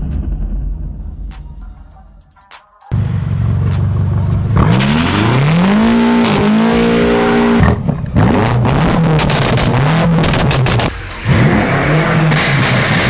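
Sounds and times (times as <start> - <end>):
car engine revving: 3.0 - 13.0.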